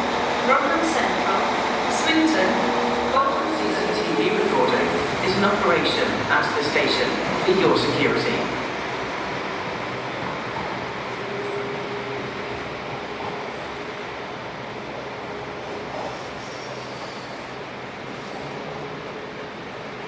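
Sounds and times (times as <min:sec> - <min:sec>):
train rumble and hum: 0:00.0 - 0:20.0.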